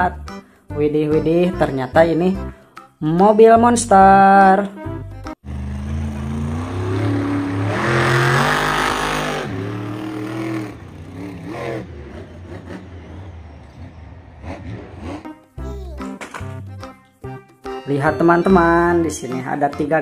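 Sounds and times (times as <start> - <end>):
truck engine revving: 5.4 - 15.3.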